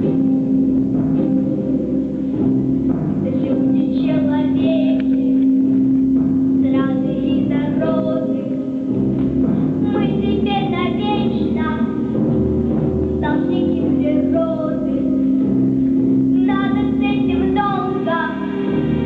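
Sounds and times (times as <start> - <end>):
instrumental backing track: 0.0 - 19.0
children singing: 16.4 - 19.0.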